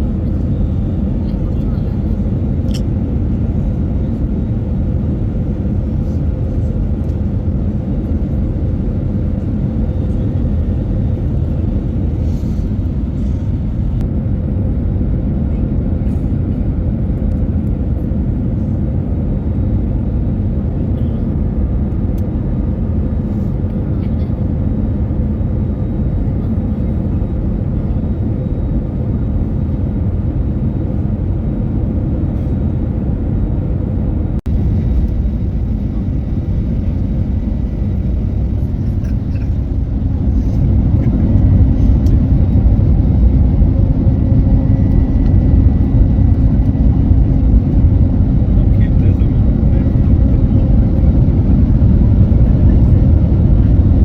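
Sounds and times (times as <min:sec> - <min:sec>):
faint hum: 0:12.1 - 0:54.0
vehicle engine rumbling: 0:34.4 - 0:54.0.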